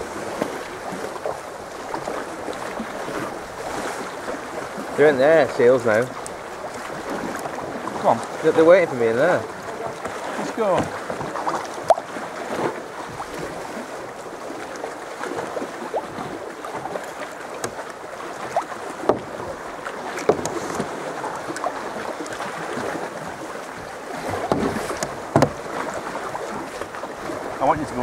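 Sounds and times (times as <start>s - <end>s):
paddle splashing in water: 0.0s - 28.0s
water lapping along hull: 0.0s - 28.0s.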